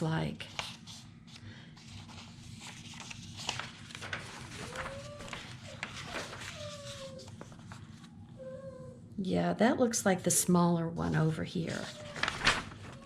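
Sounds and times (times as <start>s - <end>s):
paper rustling and tapping: 1.9s - 8.1s, 11.9s - 13.0s.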